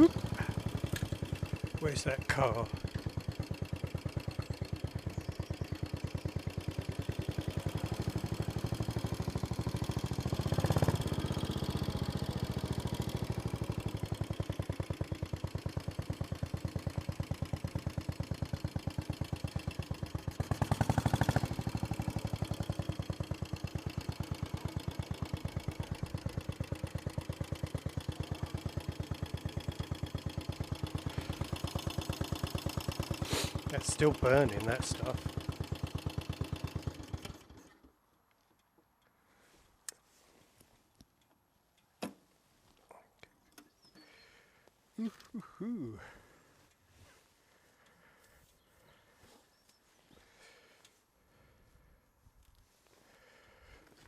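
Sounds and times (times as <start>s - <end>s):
motorcycle engine thumping: 0.1s - 1.8s, 2.7s - 33.8s.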